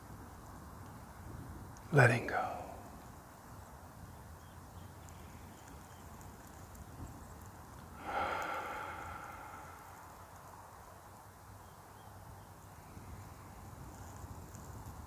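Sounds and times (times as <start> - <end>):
faint low outdoor rumble: 0.0 - 15.0
exhaled sigh: 8.0 - 10.3.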